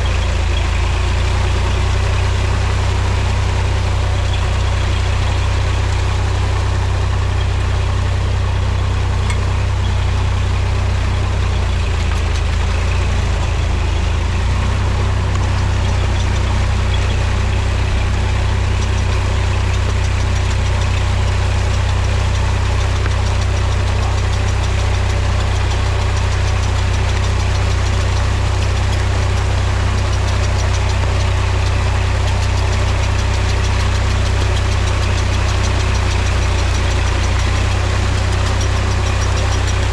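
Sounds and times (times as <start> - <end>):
tractor diesel engine droning: 0.0 - 39.9.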